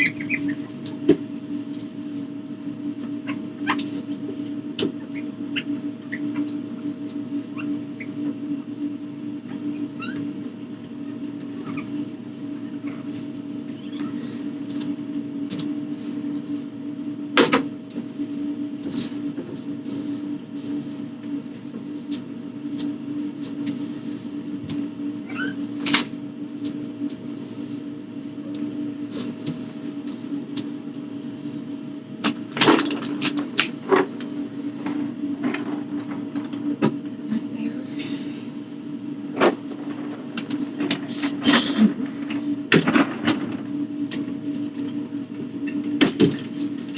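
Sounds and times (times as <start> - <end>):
steady hum: 0.0 - 46.9
items clattering: 32.3 - 37.2, 39.3 - 45.0.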